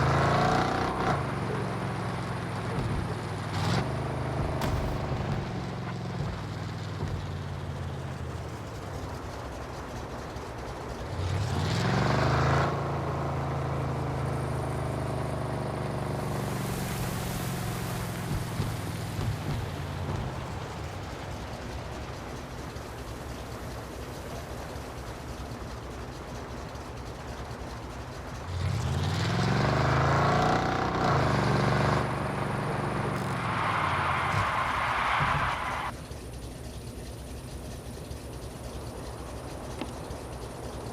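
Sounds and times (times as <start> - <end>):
truck engine running and revving: 0.0 - 40.9
pickup truck engine revving: 28.3 - 35.9.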